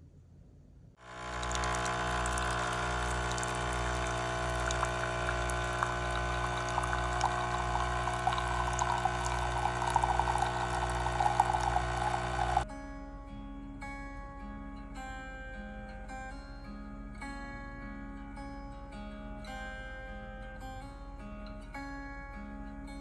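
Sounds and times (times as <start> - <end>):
liquid pouring: 1.0 - 12.6
machine hum with pulsing throb: 1.0 - 12.6.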